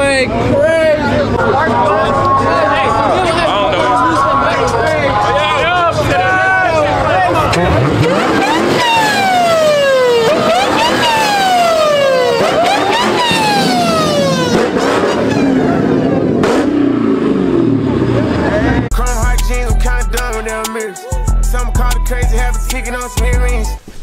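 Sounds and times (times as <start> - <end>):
car engines: 0.0 - 20.6
siren wailing: 8.0 - 16.4.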